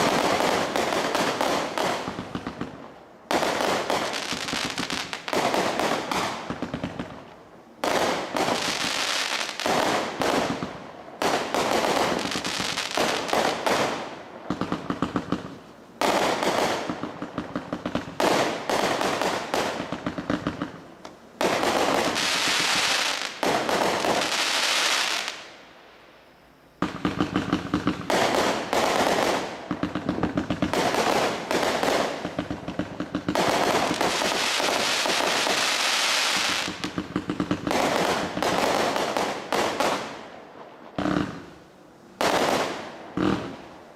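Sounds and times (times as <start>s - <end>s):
firework cake rapid shots: 0.0s - 2.6s, 26.8s - 40.2s.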